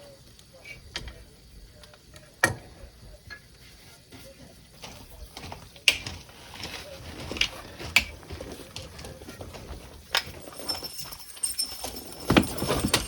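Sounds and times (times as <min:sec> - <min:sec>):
tools scraping and handling: 0:03.4 - 0:13.0.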